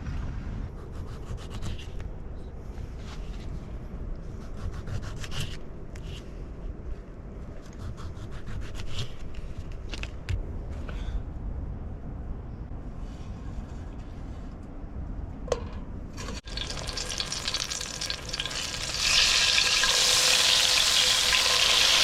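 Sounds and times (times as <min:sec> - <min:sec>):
steady low rumble: 0:09.1 - 0:17.6.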